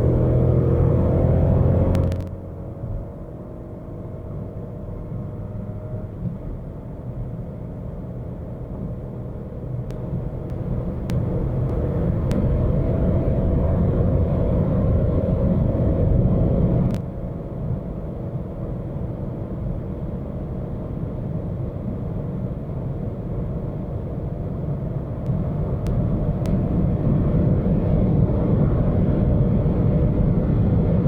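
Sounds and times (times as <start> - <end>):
car engine accelerating: 0.0 - 6.4, 9.8 - 17.0, 24.5 - 31.0
road noise rumble: 0.0 - 31.0.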